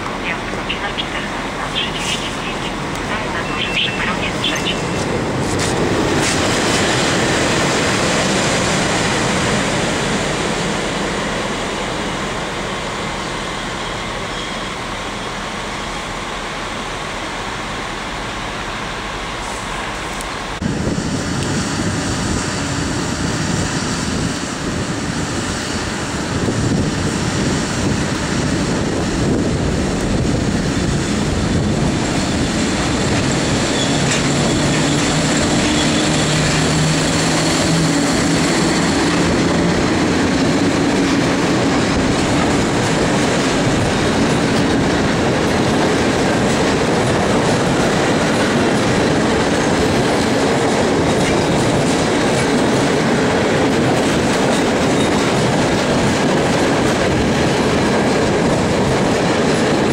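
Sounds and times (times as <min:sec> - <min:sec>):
electric locomotive humming: 0:00.0 - 0:59.9
train wheels clicking over rail joints: 0:31.0 - 0:59.9.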